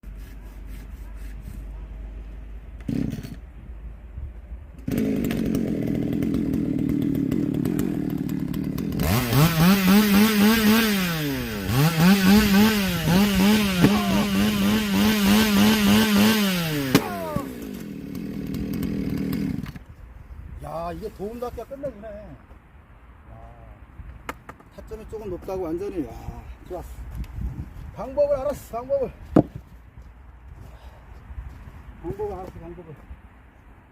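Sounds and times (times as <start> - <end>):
chainsaw engine revving: 2.8 - 3.4, 4.8 - 19.8.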